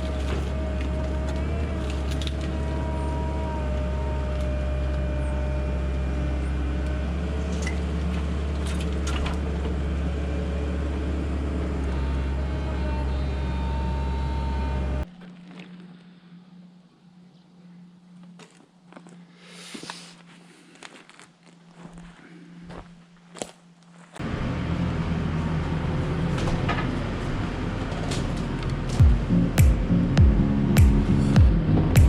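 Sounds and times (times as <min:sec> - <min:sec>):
hydraulic whine: 0:00.0 - 0:16.9
excavator diesel engine: 0:00.0 - 0:17.2, 0:24.2 - 0:32.0.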